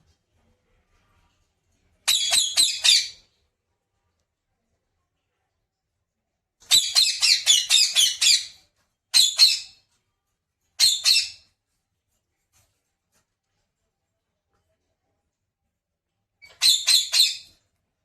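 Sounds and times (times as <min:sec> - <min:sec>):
parrot squawking: 0:02.1 - 0:03.2, 0:06.7 - 0:08.6, 0:09.2 - 0:09.8, 0:10.8 - 0:11.4, 0:16.4 - 0:17.5.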